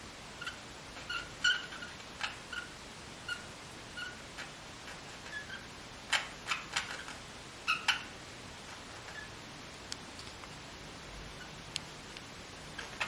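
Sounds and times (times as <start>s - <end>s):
small pet squeaking: 0.4s - 4.6s, 5.2s - 8.2s, 12.8s - 13.0s.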